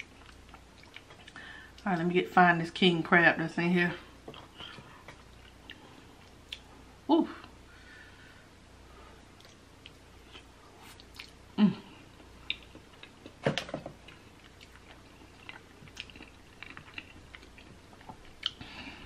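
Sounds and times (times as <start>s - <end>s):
chewing with wet mouth clicks: 0.0s - 1.4s, 4.3s - 6.7s, 9.4s - 11.4s, 12.2s - 13.4s, 14.0s - 18.6s.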